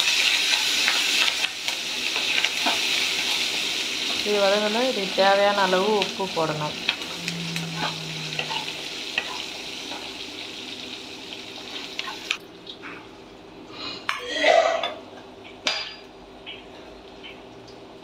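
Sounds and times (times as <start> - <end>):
lentils sizzling in oil: 0.0 - 12.4.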